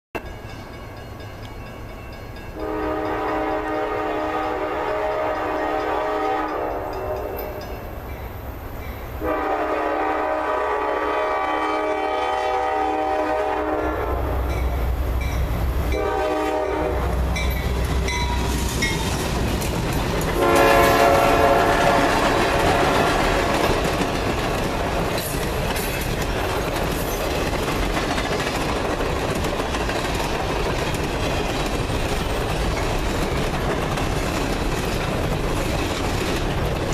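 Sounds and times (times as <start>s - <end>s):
locomotive horn blasts: 2.6s - 7.6s, 9.2s - 14.5s, 15.9s - 18.1s, 20.4s - 23.8s
train wheels clattering: 16.9s - 36.9s.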